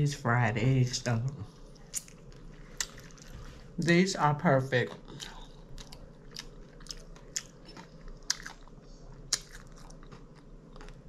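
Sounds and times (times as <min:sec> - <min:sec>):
person chewing food: 0:01.6 - 0:03.8, 0:04.8 - 0:11.0.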